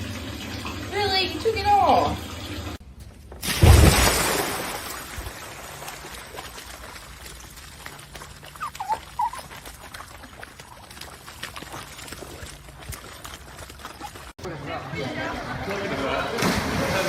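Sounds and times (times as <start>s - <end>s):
dog whining: 8.4s - 11.1s.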